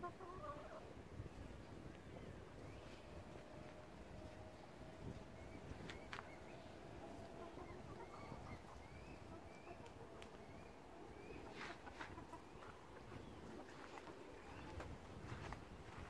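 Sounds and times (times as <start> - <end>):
low steady rumble: 0.8 - 11.5
faint bird chirps: 4.8 - 14.8.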